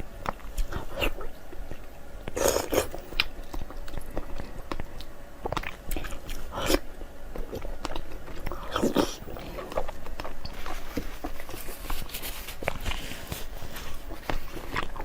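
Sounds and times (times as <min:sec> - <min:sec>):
wet chewing: 0:00.0 - 0:15.0.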